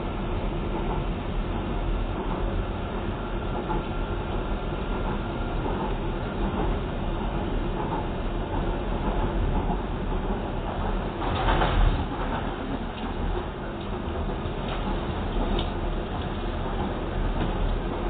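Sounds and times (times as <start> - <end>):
train wheels running on rails: 0.0 - 18.0.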